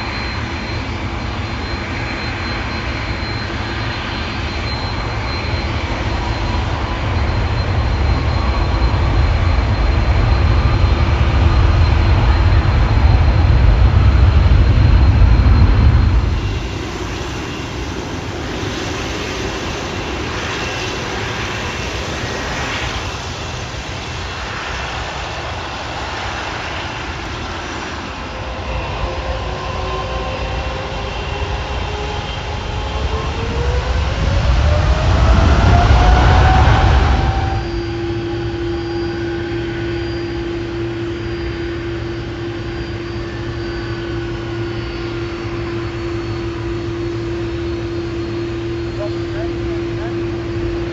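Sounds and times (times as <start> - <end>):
jet engines rumbling and whining: 0.0 - 50.9.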